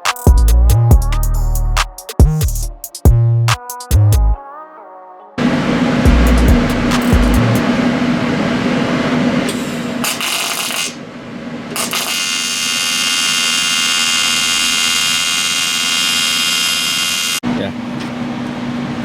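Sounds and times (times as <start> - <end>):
power tool cutting pipe: 11.8 - 17.4.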